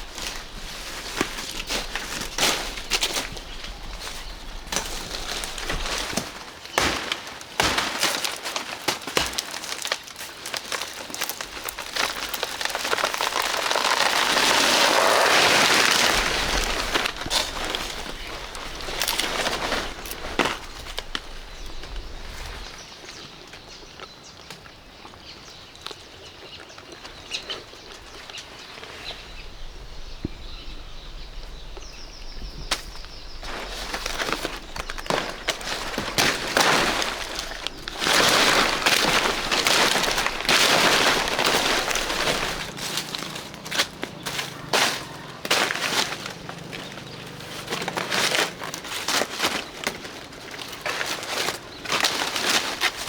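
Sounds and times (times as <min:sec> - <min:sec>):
rustling handling noise: 0:00.0 - 0:22.9, 0:32.6 - 0:53.0.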